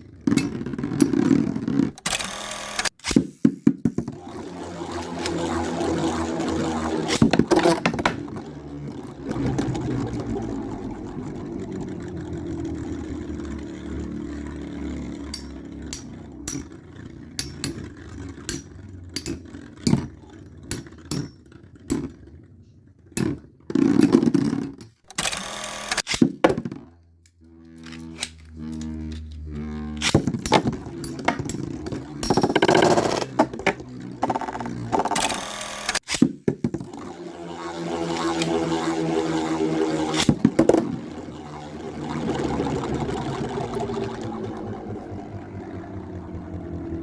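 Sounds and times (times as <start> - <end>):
spinning tops whirring: 0.0 - 22.5, 23.2 - 26.8, 27.4 - 47.0
spinning tops clacking: 0.3 - 22.1, 27.8 - 46.1.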